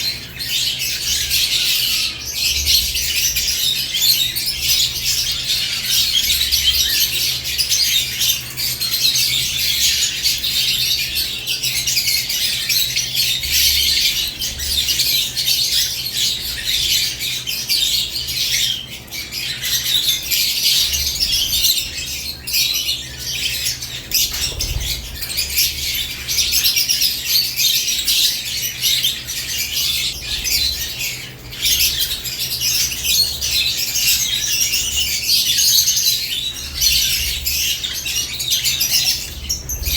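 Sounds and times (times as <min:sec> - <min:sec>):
lovebirds chirping and squawking: 0:00.0 - 0:39.9
wing flutters: 0:24.1 - 0:26.2.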